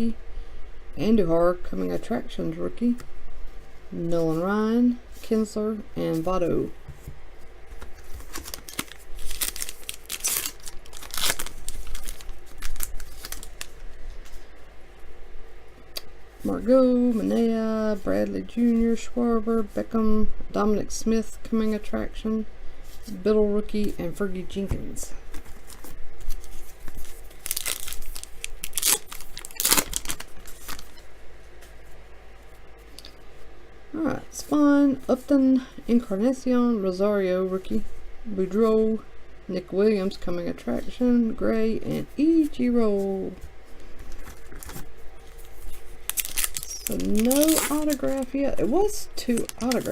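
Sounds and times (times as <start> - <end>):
wrapper being torn and crinkled: 8.1 - 13.9, 25.4 - 30.9, 44.1 - 48.4, 49.2 - 49.9.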